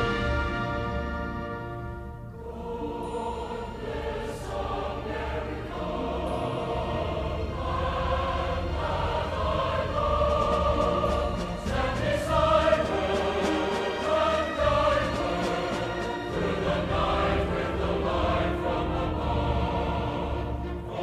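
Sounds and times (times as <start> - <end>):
choir singing sustained notes: 0.0 - 21.0.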